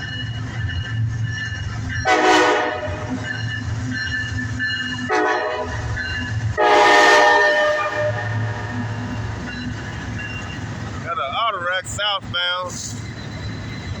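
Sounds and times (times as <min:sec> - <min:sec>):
locomotive rumble: 0:00.0 - 0:14.0
locomotive air horn: 0:02.0 - 0:03.2, 0:05.0 - 0:06.0, 0:06.6 - 0:09.1.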